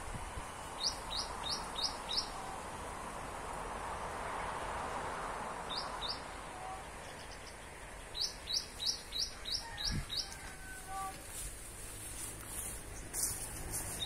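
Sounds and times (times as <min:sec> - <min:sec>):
road traffic noise: 0:00.0 - 0:14.0
bird chirping: 0:00.8 - 0:02.4, 0:05.7 - 0:11.1.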